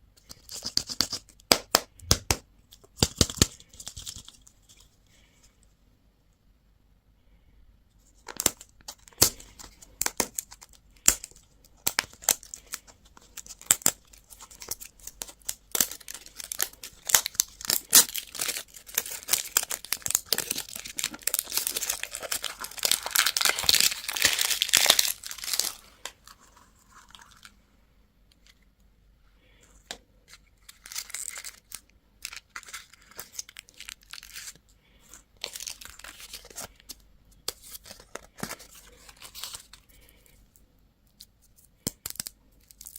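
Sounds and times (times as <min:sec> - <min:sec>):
candy wrappers crinkling and tearing: 0:08.2 - 0:27.6, 0:30.3 - 0:40.4, 0:41.7 - 0:42.9.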